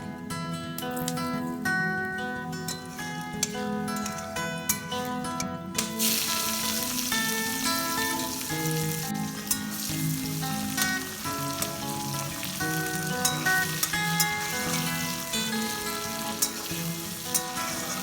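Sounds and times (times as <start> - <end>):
plucked-string melody: 0.0 - 18.0
food sizzling in oil: 5.8 - 18.0.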